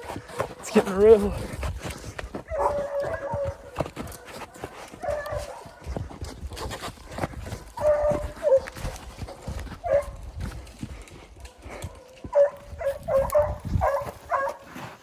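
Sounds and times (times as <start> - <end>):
hounds baying: 2.3 - 6.3, 7.2 - 14.7.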